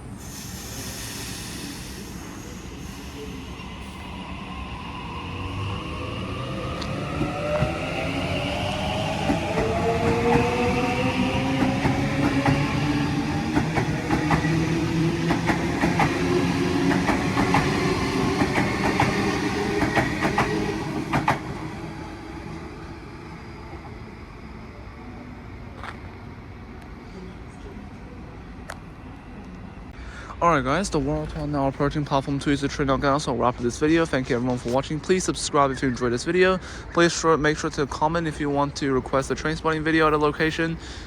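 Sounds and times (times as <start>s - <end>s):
electric train whine: 0.0s - 29.9s.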